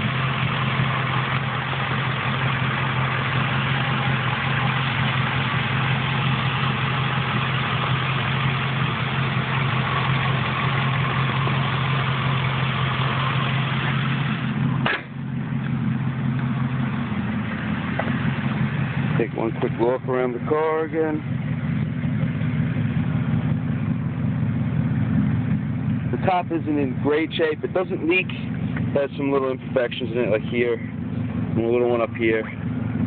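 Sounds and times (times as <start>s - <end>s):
car engine idling: 0.0s - 33.0s
car hood thump: 14.8s - 15.2s.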